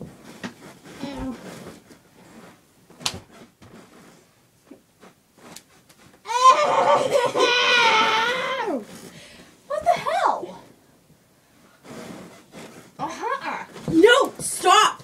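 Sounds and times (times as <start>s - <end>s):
girl's long high-pitched cry: 6.3s - 8.9s
faint rustling: 11.4s - 15.0s.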